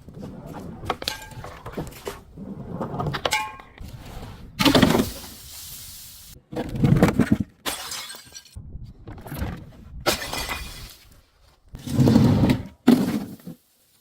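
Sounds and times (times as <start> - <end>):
glass bottles shattering: 7.7 - 8.6, 10.1 - 11.0.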